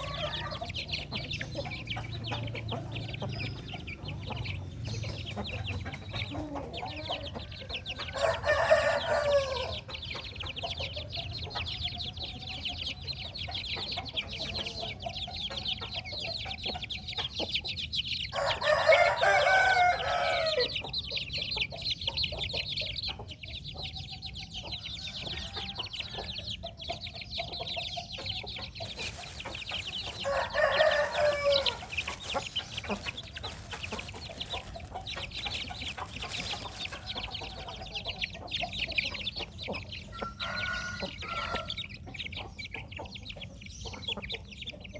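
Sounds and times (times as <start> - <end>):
chicken clucks: 0.0 - 44.9
rooster crowing: 8.0 - 9.8, 18.3 - 20.8, 30.1 - 31.9, 40.2 - 41.8.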